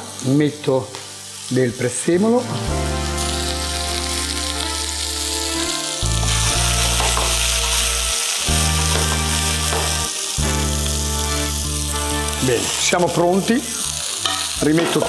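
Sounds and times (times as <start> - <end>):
food sizzling in frying pan: 0.0 - 15.0.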